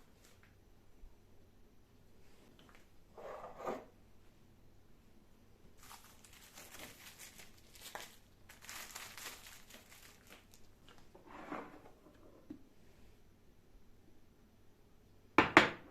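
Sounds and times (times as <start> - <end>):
wrapper crinkling: 5.8 - 11.1.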